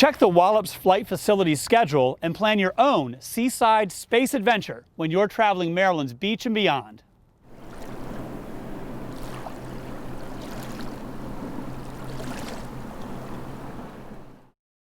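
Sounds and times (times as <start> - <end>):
steady low hum: 7.5 - 14.5
water splashing around kayak: 7.5 - 14.5.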